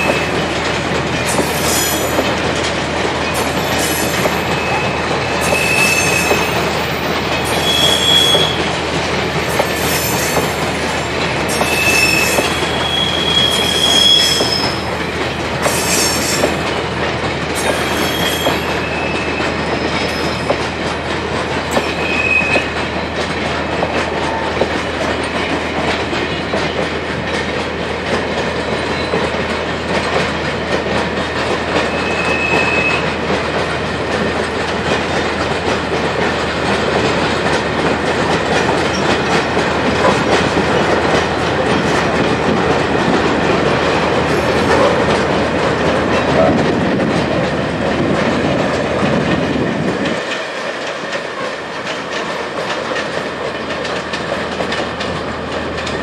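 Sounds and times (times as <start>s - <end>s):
high-pitched wheel squeals: 4.4s - 6.6s, 7.5s - 8.6s, 11.5s - 14.9s, 17.7s - 20.5s, 21.9s - 22.7s, 31.9s - 33.0s.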